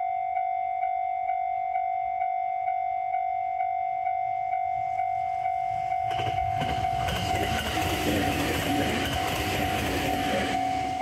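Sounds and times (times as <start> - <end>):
pulsing ringing tone: 0.0 - 11.0
train rail and wheel rumble: 4.7 - 11.0.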